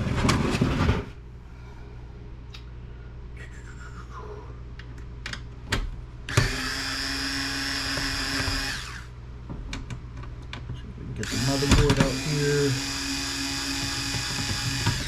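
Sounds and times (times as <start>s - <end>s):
power drill spinning: 6.3s - 9.2s, 11.2s - 15.0s.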